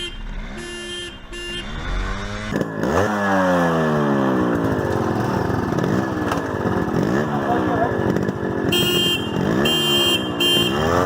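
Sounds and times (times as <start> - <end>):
short horn honks: 0.0 - 2.2, 8.7 - 11.0
motorcycle engines revving: 0.0 - 11.0.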